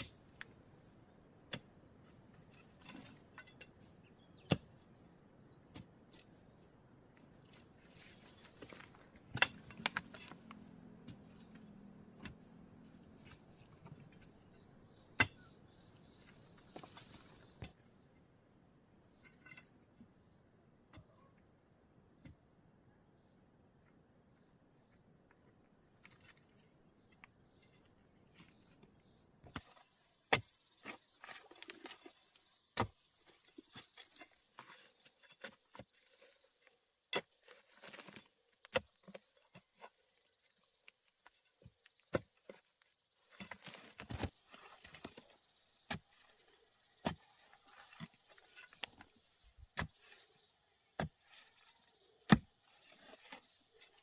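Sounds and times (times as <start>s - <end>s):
insects chirping: 29.5s - 50.6s
high steady insect buzz: 29.6s - 31.0s.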